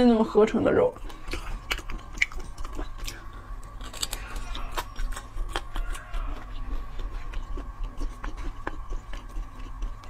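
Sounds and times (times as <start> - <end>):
person chewing: 0.9 - 10.0
wet mouth clicks and smacks: 1.0 - 3.2.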